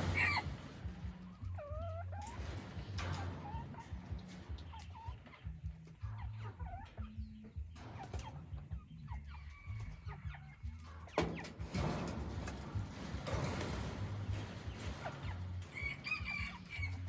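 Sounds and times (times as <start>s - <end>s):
junglefowl clucking: 0.0s - 0.4s, 4.7s - 11.7s, 15.0s - 17.0s.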